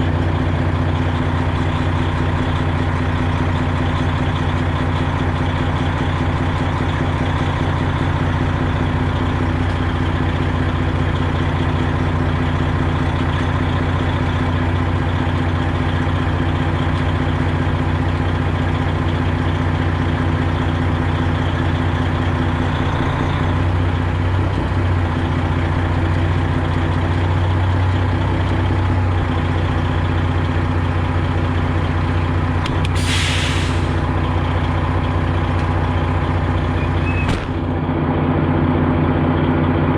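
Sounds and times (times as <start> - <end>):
diesel truck engine idling: 0.0 - 39.9
air brakes hissing: 32.9 - 34.0.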